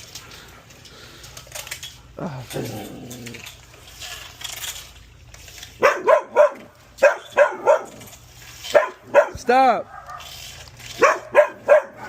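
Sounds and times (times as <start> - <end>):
dog barking: 5.8 - 8.0, 8.7 - 10.3, 11.0 - 12.0.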